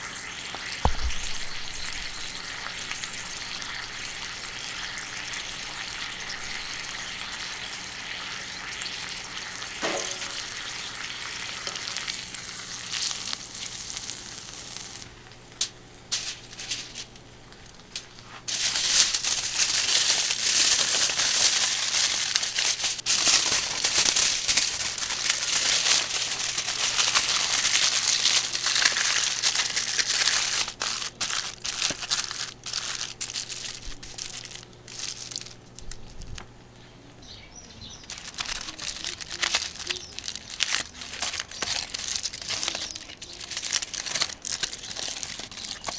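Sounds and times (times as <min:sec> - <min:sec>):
steak sizzling on a griddle: 0:00.0 - 0:34.8
fat popping: 0:00.5 - 0:04.9.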